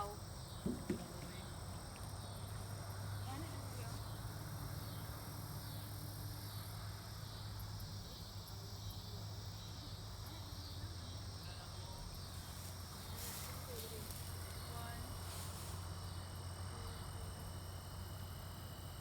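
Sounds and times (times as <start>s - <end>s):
low steady hum: 0.0s - 19.0s
insects shrilling: 12.1s - 16.1s.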